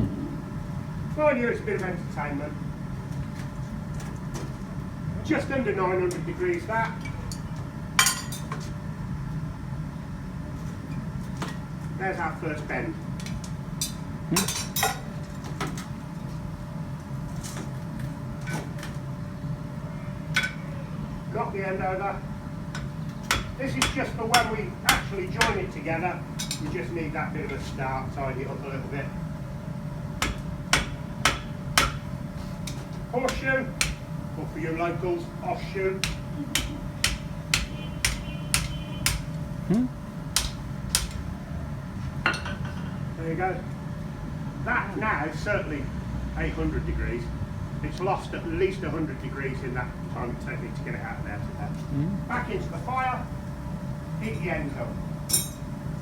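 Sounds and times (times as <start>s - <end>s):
steady low hum: 0.0s - 4.0s, 16.0s - 56.0s
hammer striking steel on anvil: 22.8s - 25.6s, 30.2s - 32.1s, 32.7s - 34.0s, 36.0s - 39.4s, 40.4s - 41.2s, 55.3s - 55.6s.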